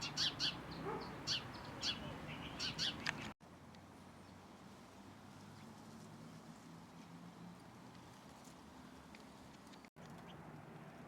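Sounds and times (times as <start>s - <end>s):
birds chirping: 0.0s - 3.4s.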